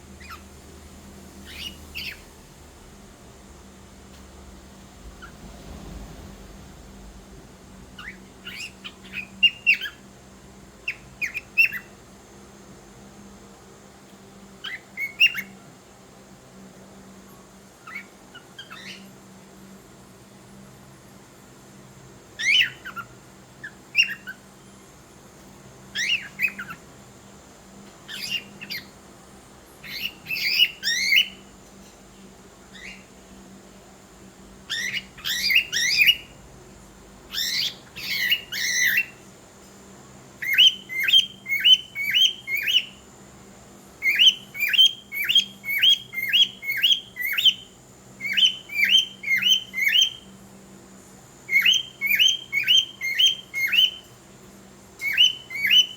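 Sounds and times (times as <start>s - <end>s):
cockatiel chirping and whistling: 0.2s - 0.4s, 1.5s - 2.2s, 8.0s - 10.0s, 24.0s - 24.4s, 26.0s - 26.8s, 29.9s - 31.4s, 34.7s - 36.3s, 37.3s - 39.2s, 40.4s - 43.0s, 44.0s - 50.2s, 51.5s - 54.0s, 55.0s - 55.9s.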